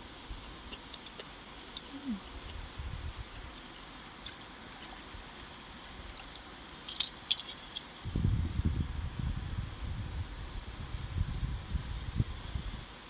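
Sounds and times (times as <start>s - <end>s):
wind buffeting microphone: 2.1s - 3.5s, 8.0s - 12.9s.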